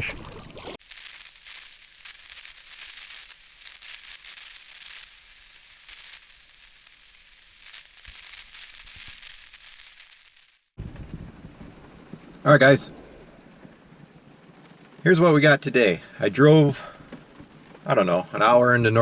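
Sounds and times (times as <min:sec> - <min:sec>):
steady rain falling: 0:00.8 - 0:19.0.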